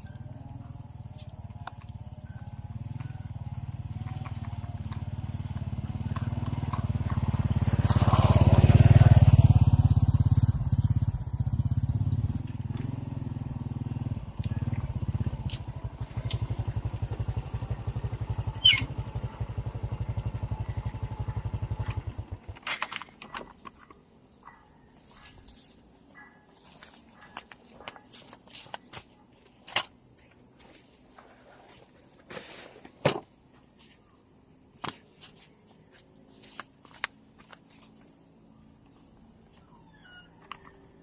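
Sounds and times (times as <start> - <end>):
motorcycle engine running: 0.0 - 28.4.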